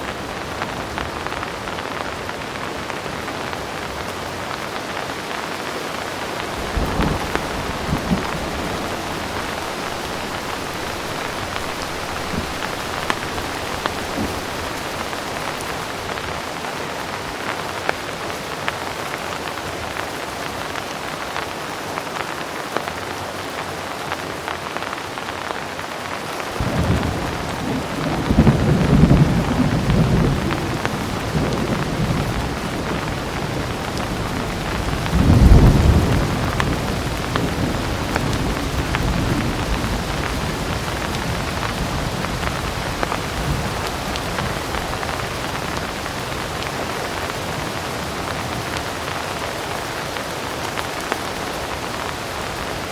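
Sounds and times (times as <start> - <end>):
heavy rain: 0.0 - 52.9
thunder rumbling: 6.2 - 17.7, 26.5 - 50.0.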